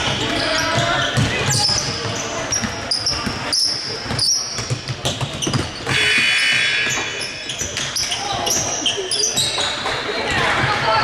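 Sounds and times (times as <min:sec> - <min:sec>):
sneaker squeaks: 0:00.0 - 0:10.9
crowd voices echoing: 0:00.0 - 0:11.0
basketball bouncing on hardwood: 0:00.2 - 0:03.4, 0:04.0 - 0:06.0.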